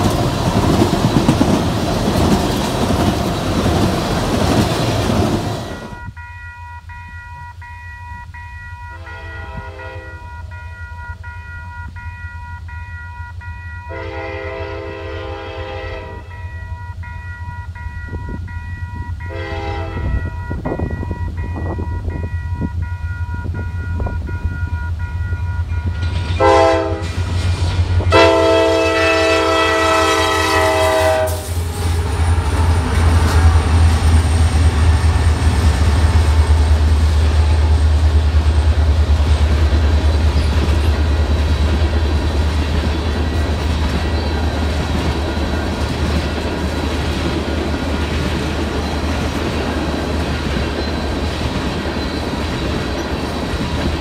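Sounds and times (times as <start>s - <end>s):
train wheels rumbling over rail joints: 0.0s - 6.2s, 17.6s - 54.0s
diesel locomotive horn blasts: 5.6s - 36.6s.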